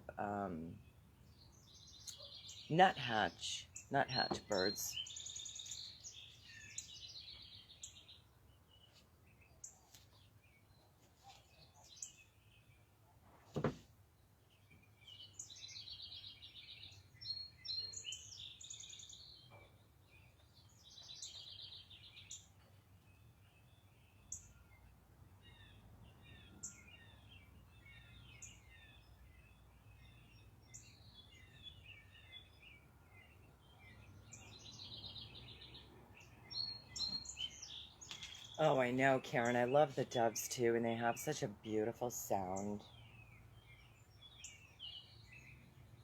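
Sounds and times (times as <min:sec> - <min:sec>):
songbirds trilling: 0:00.0 - 0:13.0, 0:13.6 - 0:46.0
short bird chirps and calls: 0:00.8 - 0:02.8, 0:14.6 - 0:38.6.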